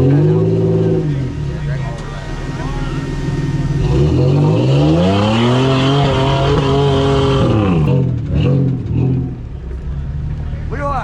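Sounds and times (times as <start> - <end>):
engine revving: 0.0 - 10.3.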